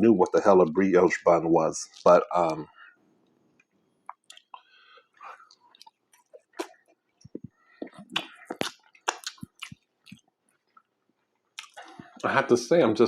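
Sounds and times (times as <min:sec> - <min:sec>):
person chewing with mouth smacks: 0:04.1 - 0:12.3.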